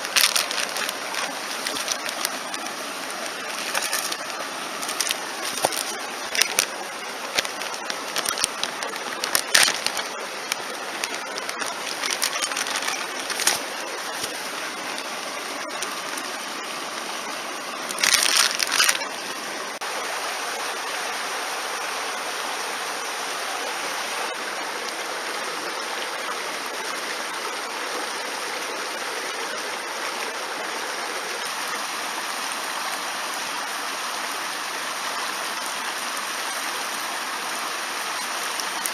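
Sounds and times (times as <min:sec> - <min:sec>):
stream rushing: 0:00.0 - 0:38.9
sharp cracks and snaps: 0:07.4 - 0:13.6.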